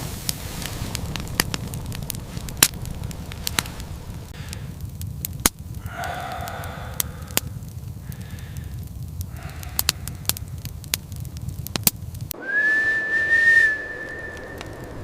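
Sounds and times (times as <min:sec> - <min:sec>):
fire crackling with pops: 0:00.0 - 0:15.0
loud high whistle: 0:12.4 - 0:15.0.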